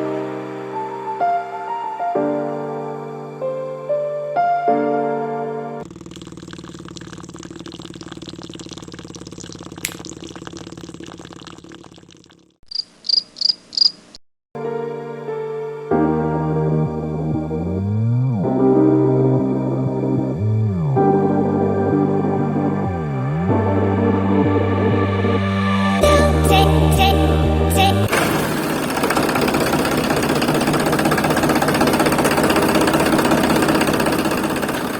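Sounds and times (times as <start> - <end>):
motor running with rattle: 5.8 - 11.0, 28.1 - 34.9.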